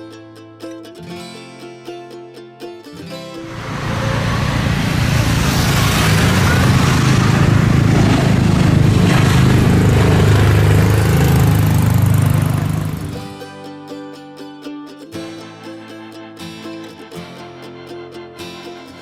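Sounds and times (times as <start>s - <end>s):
rough vehicle engine noise: 3.4s - 13.3s.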